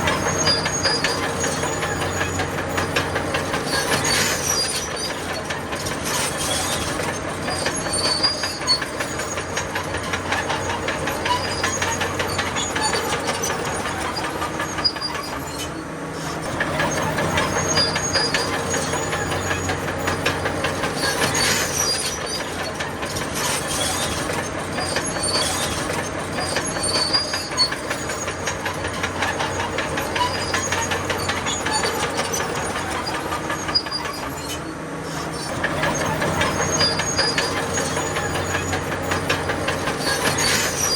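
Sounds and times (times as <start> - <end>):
high-pitched track squeals: 0.0 - 5.4, 16.7 - 22.8, 26.4 - 40.9
diesel engine running under load: 0.0 - 40.9
steel tracks clattering: 0.0 - 40.9.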